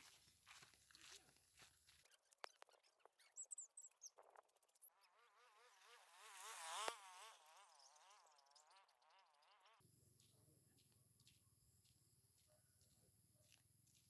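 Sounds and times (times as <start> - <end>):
faint insect-like buzz: 4.1 - 10.3.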